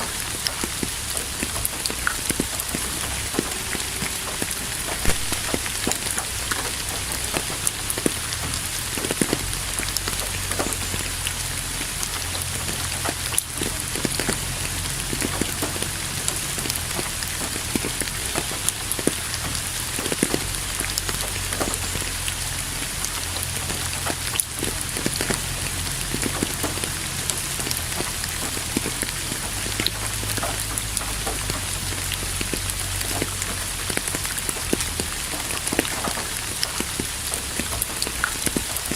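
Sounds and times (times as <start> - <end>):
low rumble: 0.0 - 38.9
rain drops striking close by: 0.0 - 38.9.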